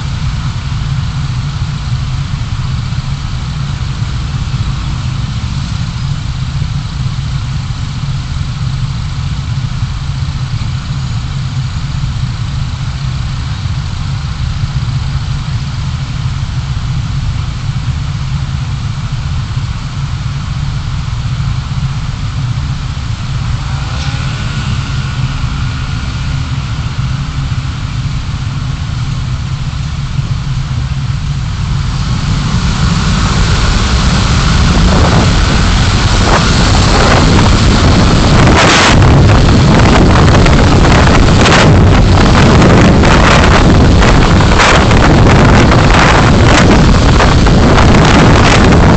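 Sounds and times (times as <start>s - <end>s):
car engine and road rumble: 0.0s - 48.9s
rushing wind: 18.9s - 48.9s.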